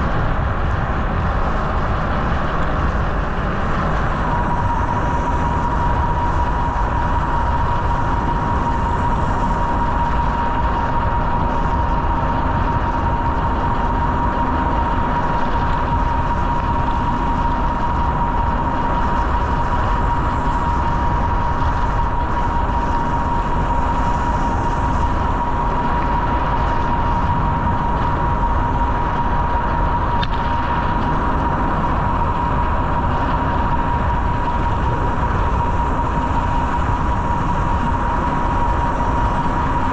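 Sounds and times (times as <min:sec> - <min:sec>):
bicycle rolling noise: 0:00.0 - 0:39.9
high-pitched whine: 0:00.0 - 0:39.9
wind: 0:00.0 - 0:39.9.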